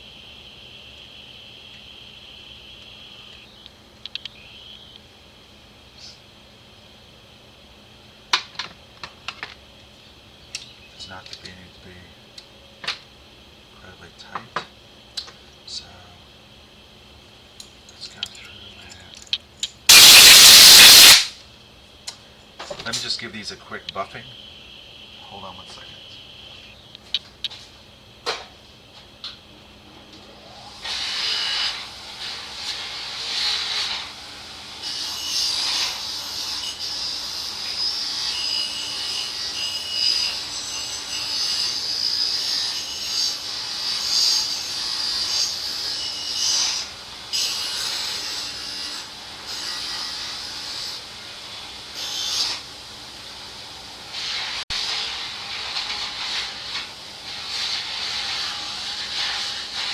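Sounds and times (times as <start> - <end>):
metal parts rubbing on buffing wheel: 54.2 - 59.9.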